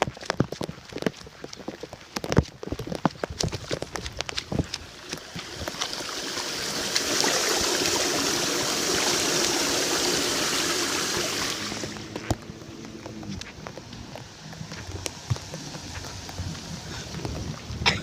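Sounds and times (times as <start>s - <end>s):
rainwater rushing into drain: 3.9s - 12.6s.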